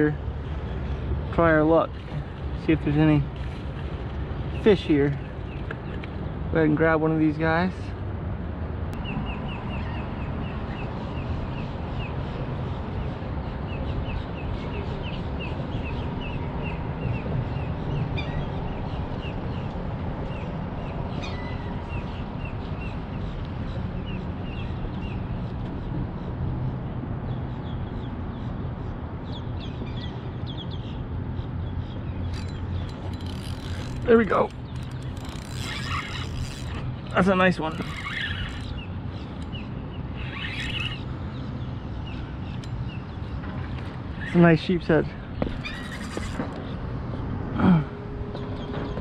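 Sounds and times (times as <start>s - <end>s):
rushing outdoor background: 0.0s - 49.0s
bird chirping: 29.2s - 44.6s.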